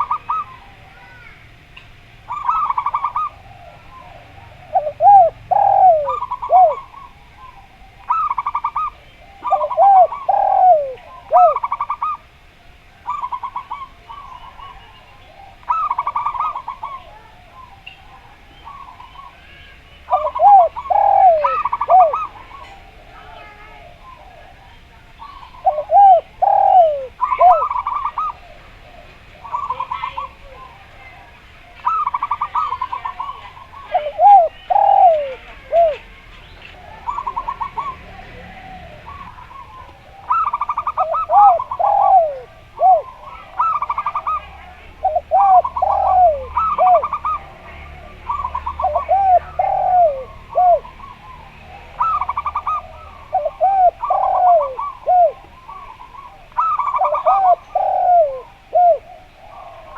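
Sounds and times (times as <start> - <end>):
dove cooing: 0.0 - 59.9
dove rattling trills: 0.0 - 59.9.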